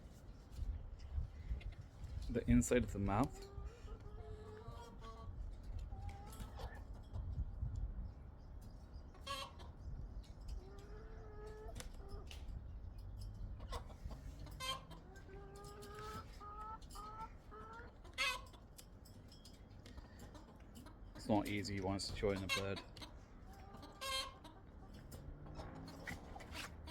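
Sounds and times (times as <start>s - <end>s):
chicken clucking: 3.0s - 7.4s, 9.1s - 9.8s, 10.5s - 12.4s, 13.4s - 18.9s, 19.8s - 26.9s.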